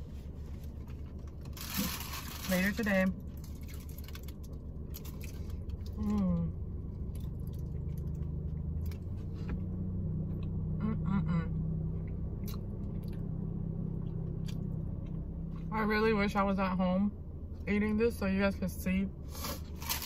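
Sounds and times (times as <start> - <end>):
person chewing with mouth clicks: 12.0 - 13.3.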